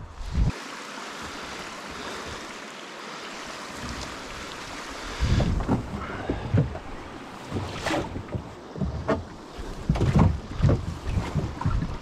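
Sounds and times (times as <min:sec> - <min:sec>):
water rushing: 0:00.0 - 0:12.0
low thumps and knocks: 0:05.2 - 0:12.0.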